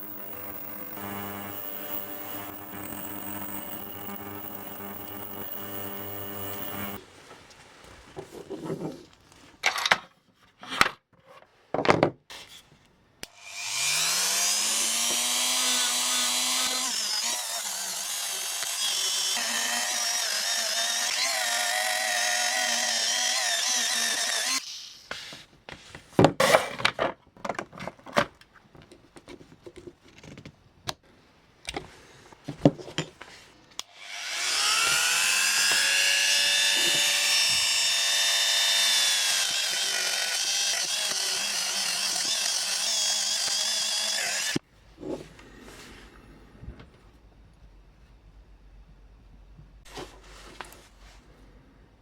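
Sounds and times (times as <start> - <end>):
handheld power tool whining: 0.0 - 7.0, 13.2 - 25.0, 33.8 - 44.6.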